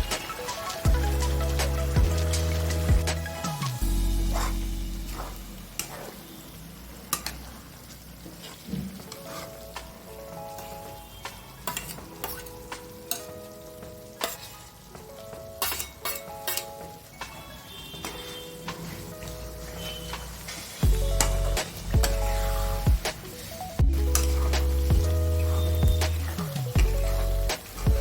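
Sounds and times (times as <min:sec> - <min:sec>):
melody of held notes: 0:00.0 - 0:05.8, 0:09.6 - 0:28.0
chicken sizzling in wok: 0:00.0 - 0:28.0
spoon clinking against pan: 0:10.5 - 0:13.5, 0:14.2 - 0:14.7, 0:15.6 - 0:18.8.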